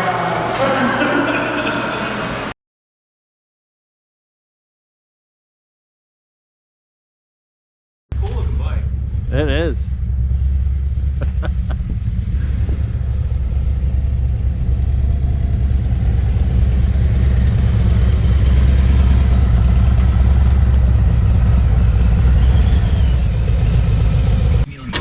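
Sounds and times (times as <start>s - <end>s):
motorcycle engine rumbling: 8.1s - 25.0s.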